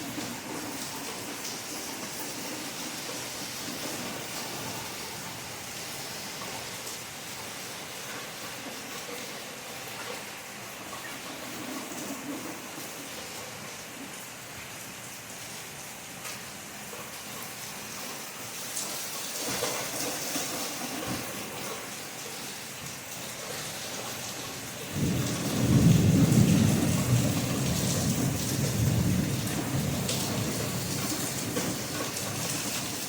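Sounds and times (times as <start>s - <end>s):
steady rain: 0.0s - 33.0s
thunder rumble: 24.9s - 32.5s.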